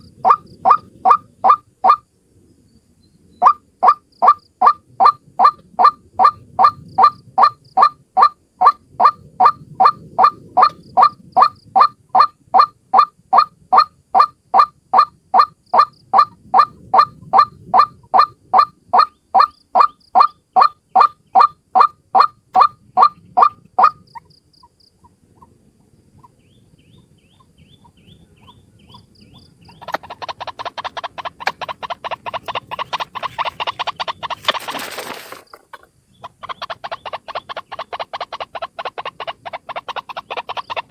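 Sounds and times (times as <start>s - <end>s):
waterhen calling: 0.0s - 2.0s, 3.4s - 24.3s, 26.2s - 40.9s.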